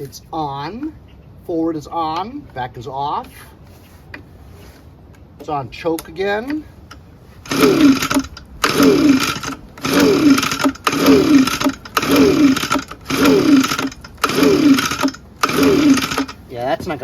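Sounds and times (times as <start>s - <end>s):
recoil starter pulls whirring: 6.0s - 17.0s.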